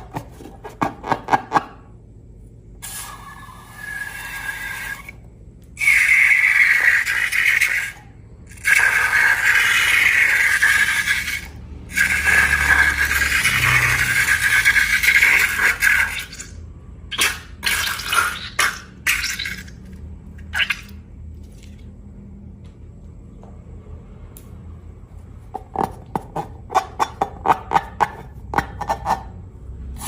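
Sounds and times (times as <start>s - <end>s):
wet hissing liquid pouring: 2.8s - 5.2s, 5.8s - 16.5s, 17.1s - 21.7s.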